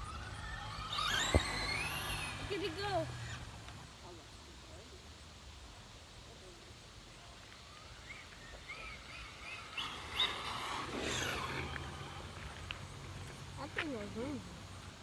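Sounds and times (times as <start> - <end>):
radio-controlled car driving past: 0.0 - 4.2, 7.4 - 15.0.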